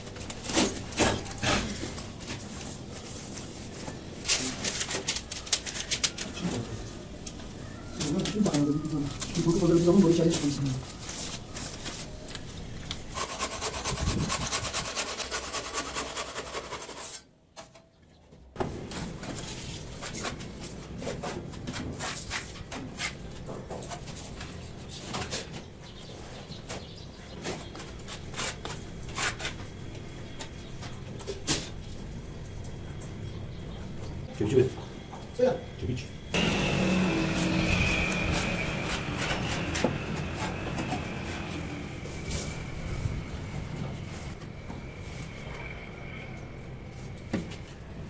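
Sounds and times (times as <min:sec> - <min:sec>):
scraping and rubbing on stone: 0:13.0 - 0:17.2.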